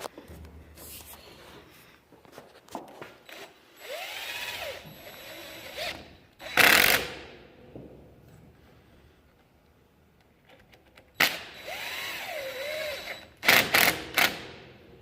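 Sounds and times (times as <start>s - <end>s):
power drill running: 3.2s - 7.2s, 11.2s - 14.4s.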